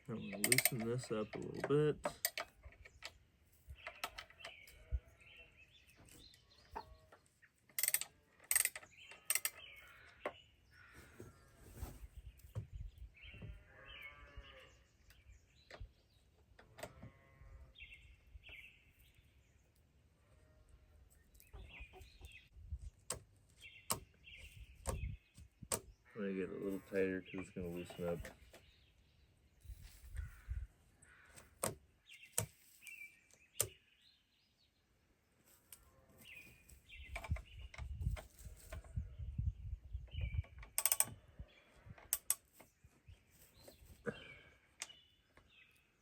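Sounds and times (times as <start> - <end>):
birds chirping: 0.0 - 46.0
clicks and knocks on chainsaw chain: 0.2 - 3.1, 7.7 - 9.7, 40.6 - 41.2, 42.0 - 42.7.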